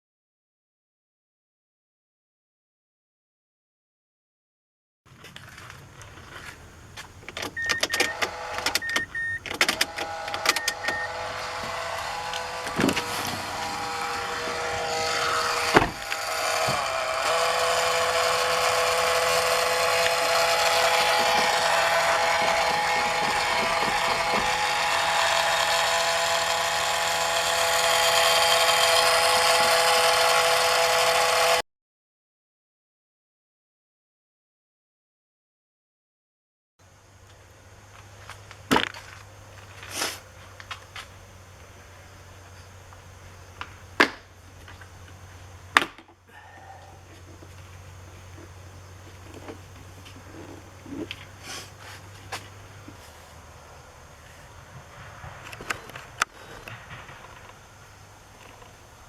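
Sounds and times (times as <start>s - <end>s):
clicks: 6.4s - 11.0s
motor whirring with a whine: 7.4s - 31.6s
short beeps: 7.6s - 8.2s, 8.8s - 9.4s, 10.5s - 11.2s.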